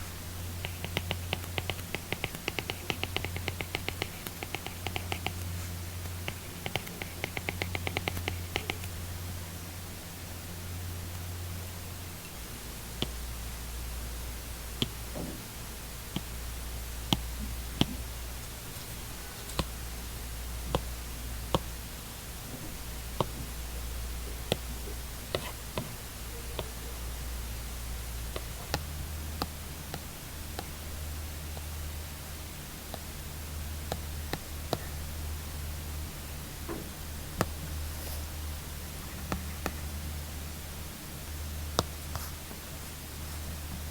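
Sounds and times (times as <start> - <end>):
low steady hum: 0.0 - 43.9
stylus tapping on tablet screen: 0.6 - 9.0, 25.3 - 26.0.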